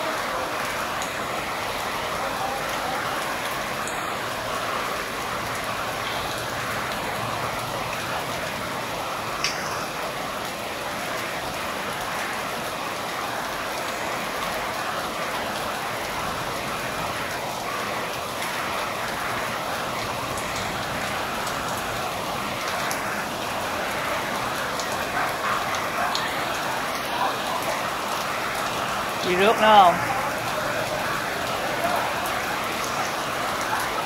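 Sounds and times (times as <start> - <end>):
rain hissing: 0.0 - 34.0
raindrops ticking: 0.0 - 34.0.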